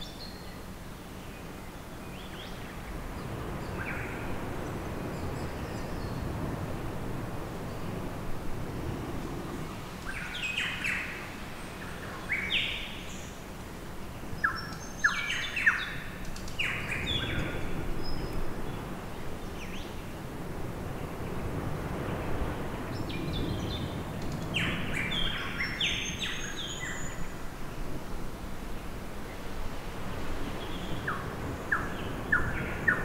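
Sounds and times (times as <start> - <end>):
low outdoor background noise: 0.0 - 33.0.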